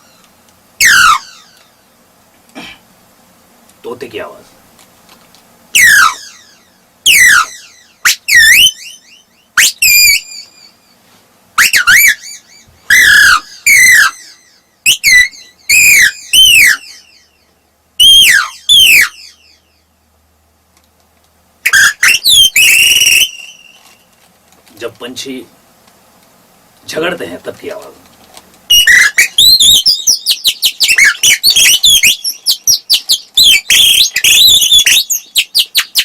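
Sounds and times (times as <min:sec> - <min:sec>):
person imitating parrot calls: 0:00.8 - 0:01.4.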